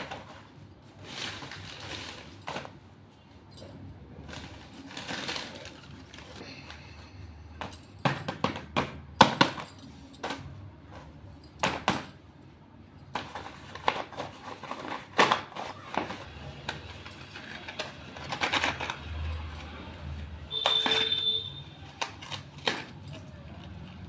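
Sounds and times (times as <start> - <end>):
slate pencils clinking: 13.0 - 24.0.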